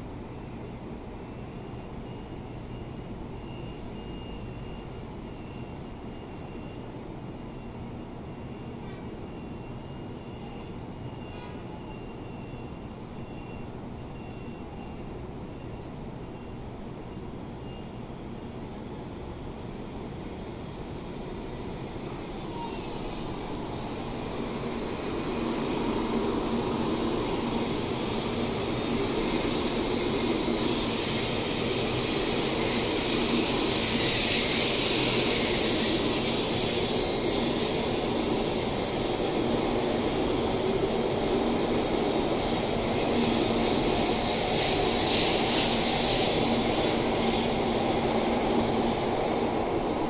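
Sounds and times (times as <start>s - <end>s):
train wheels rushing on rail: 0.0s - 50.0s.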